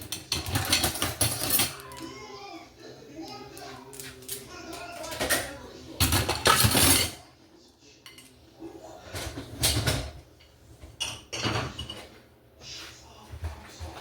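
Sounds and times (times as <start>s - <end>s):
dishes and cutlery clattering: 0.0s - 2.2s, 3.2s - 7.3s, 8.0s - 8.4s, 9.0s - 12.3s.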